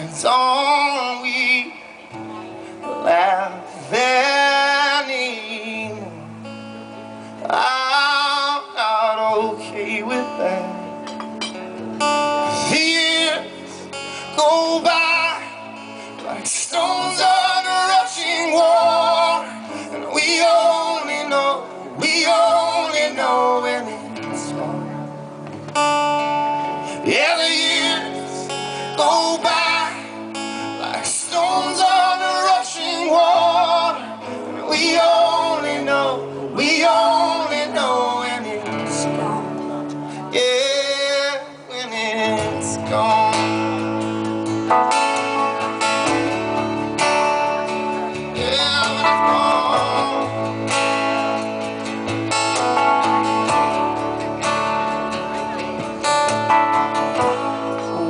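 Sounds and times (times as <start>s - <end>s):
person singing slow song: 0.0s - 11.6s, 12.2s - 54.8s, 55.5s - 58.0s
strummed acoustic guitar: 0.0s - 58.0s
low bass line: 42.2s - 58.0s.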